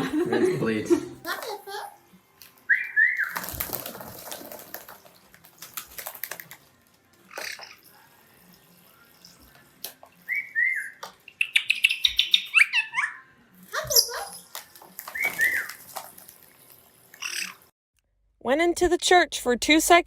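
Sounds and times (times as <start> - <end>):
water splashing: 3.1 - 10.7, 13.7 - 17.7.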